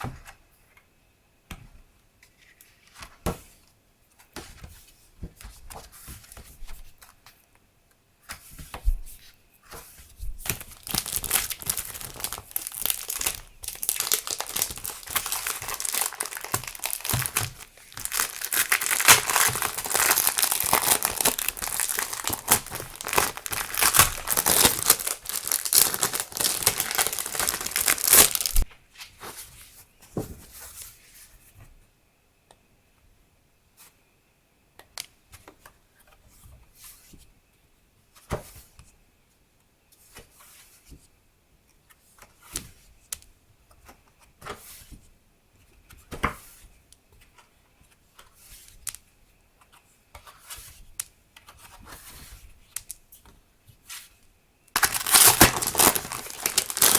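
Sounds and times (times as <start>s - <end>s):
packaging crinkling: 10.5s - 28.6s, 54.8s - 56.9s.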